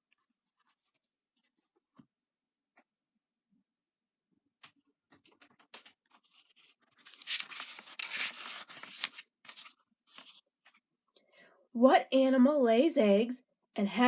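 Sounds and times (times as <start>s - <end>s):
paper clicks and scrapes: 4.6s - 10.9s
paper rustling: 4.6s - 10.9s.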